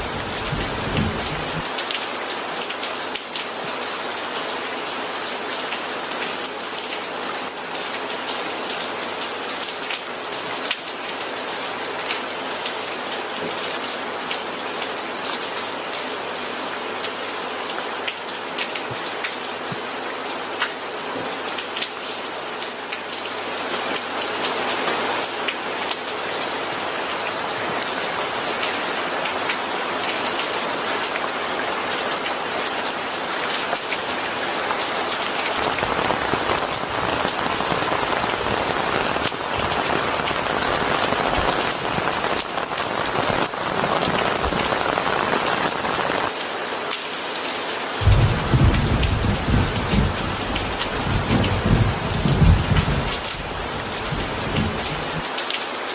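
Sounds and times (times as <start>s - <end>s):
low rumble of thunder: 0.0s - 1.7s, 48.0s - 55.2s
steady rain falling: 0.0s - 55.9s.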